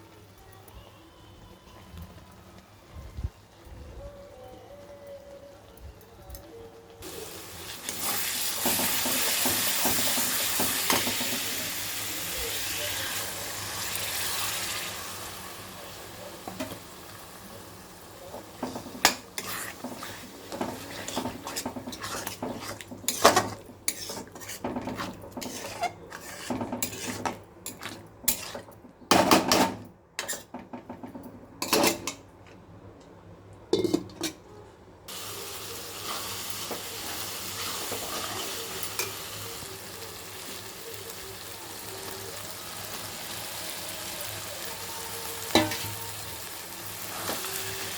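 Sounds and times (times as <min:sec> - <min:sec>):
food sizzling in a hot pan: 0:07.0 - 0:28.7, 0:35.1 - 0:47.9
metal spoon scraping a pot: 0:18.6 - 0:28.8, 0:30.2 - 0:30.6.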